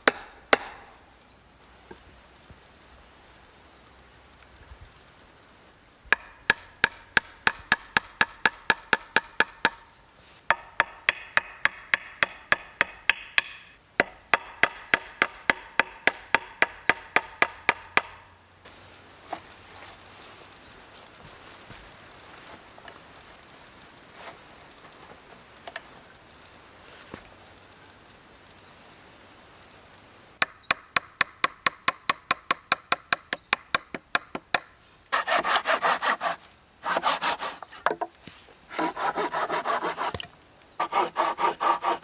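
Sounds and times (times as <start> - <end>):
tool chopping into wood: 0.0 - 0.9, 10.5 - 18.2, 38.7 - 42.0.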